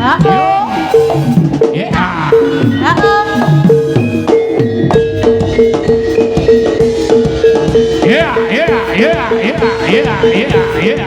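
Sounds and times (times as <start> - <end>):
drum strokes: 0.0 - 11.0
gamelan music: 0.0 - 11.0.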